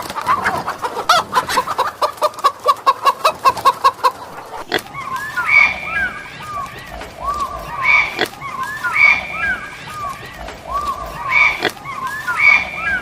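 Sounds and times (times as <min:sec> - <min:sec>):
animal gliding calls: 0:00.0 - 0:13.0
animal calling rapid pitched notes: 0:04.5 - 0:13.0.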